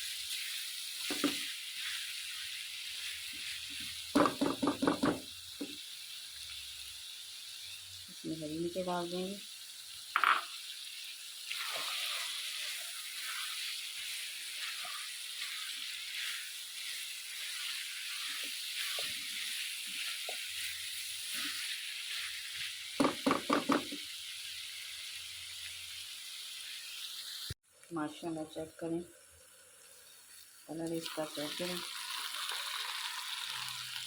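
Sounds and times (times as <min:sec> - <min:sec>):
curry sizzling in a pot: 0:00.0 - 0:34.0.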